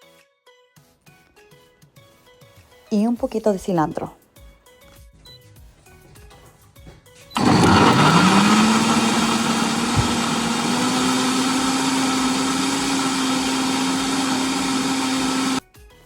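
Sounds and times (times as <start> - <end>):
blender motor running: 7.4 - 15.6.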